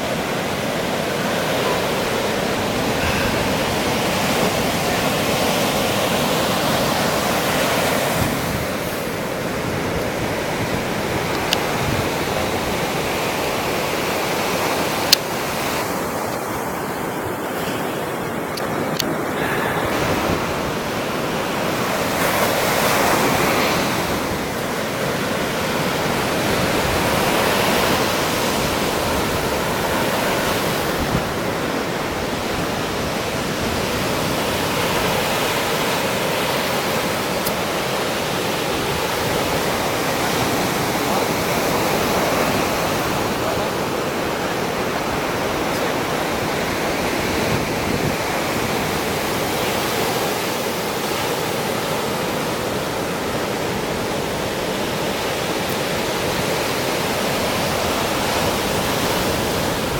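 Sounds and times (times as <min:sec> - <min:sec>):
wind buffeting microphone: 0:00.0 - 0:36.0, 0:38.3 - 0:49.6
sea waves breaking on shore: 0:00.0 - 0:59.9.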